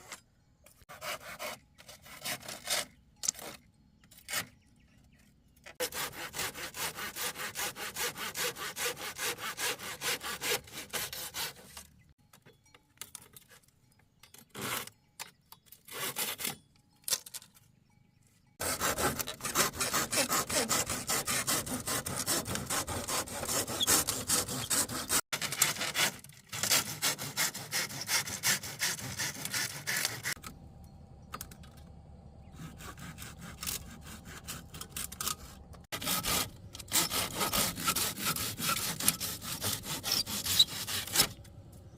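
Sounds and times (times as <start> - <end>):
hand saw cutting wood: 0.0 - 4.6, 5.7 - 12.0, 14.4 - 15.0, 15.8 - 16.6, 18.6 - 30.4, 32.5 - 41.6.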